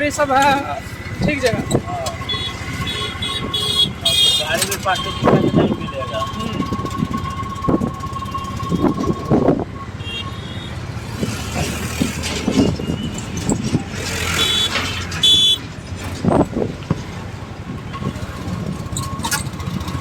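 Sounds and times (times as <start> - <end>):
road traffic: 0.0 - 20.0
vehicle horn toots: 1.6 - 10.9, 14.2 - 15.6.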